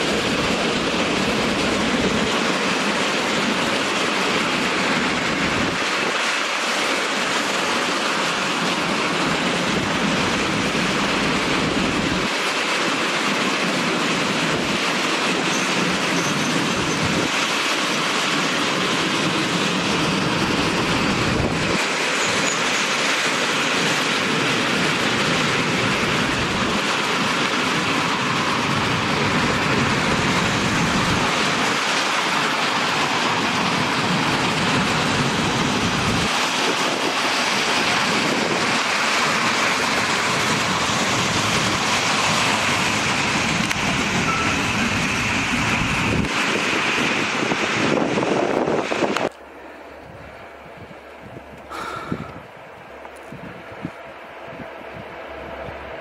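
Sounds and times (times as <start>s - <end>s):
steel wheels rumbling on rails: 0.0s - 56.0s.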